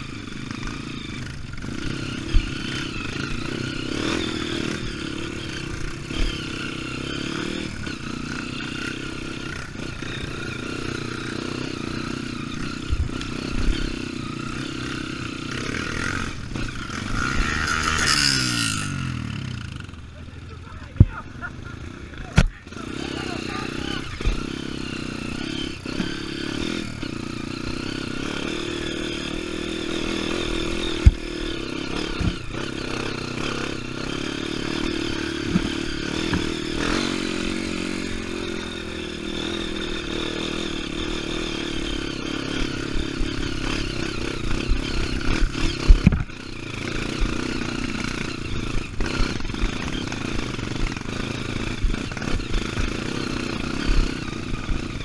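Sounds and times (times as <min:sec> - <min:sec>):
dirt bike engine revving: 0:00.0 - 0:55.0
sharp knocks from bike: 0:35.5 - 0:36.6.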